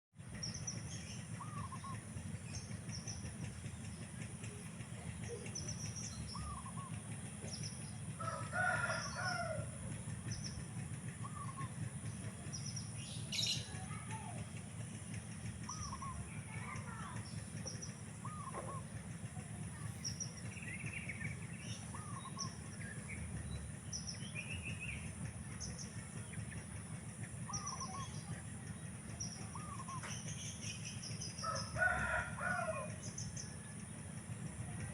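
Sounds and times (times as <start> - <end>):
steady low rumble: 0.2 - 34.9
rooster crowing: 8.2 - 9.7, 31.4 - 33.0
small birds chirping: 15.6 - 34.0.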